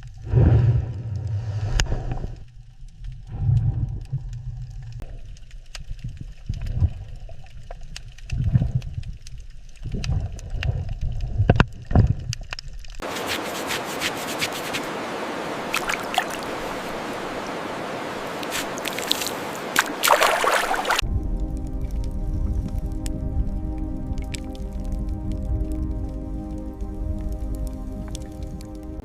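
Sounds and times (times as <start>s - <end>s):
hissing fizz with crackles: 0.0s - 29.0s
water surging: 13.0s - 21.0s.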